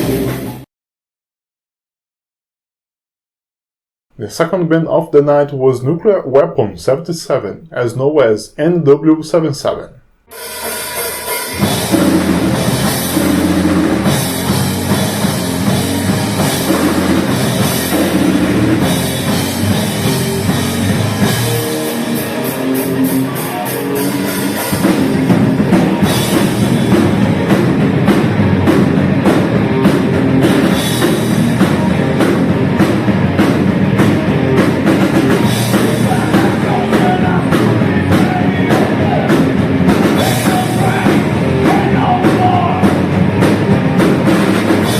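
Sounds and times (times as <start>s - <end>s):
bass: 0.0s - 0.6s, 4.1s - 44.9s
distorted electric guitars: 0.0s - 0.6s, 8.6s - 44.9s
drum kit: 0.0s - 0.6s, 4.1s - 44.9s
fast cymbal strokes: 10.3s - 18.2s.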